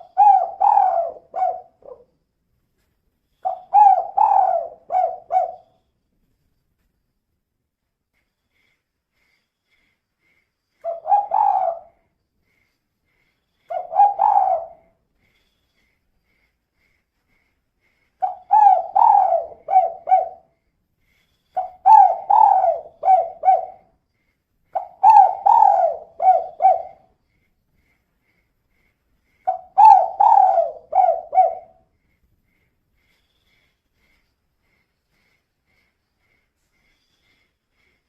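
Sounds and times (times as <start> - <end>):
dove cooing: 0.0 - 2.1, 3.4 - 5.7, 10.8 - 12.0, 13.7 - 14.9, 18.2 - 20.5, 21.6 - 23.9, 24.7 - 27.1, 29.4 - 31.8.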